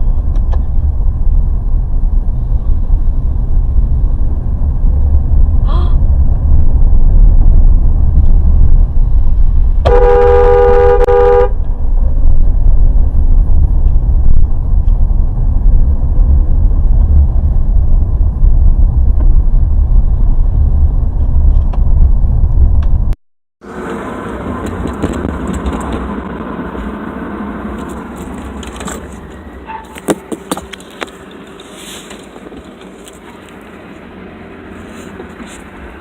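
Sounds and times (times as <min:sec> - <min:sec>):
moving car rumble: 0:00.0 - 0:36.0
car horn honking: 0:09.8 - 0:11.6.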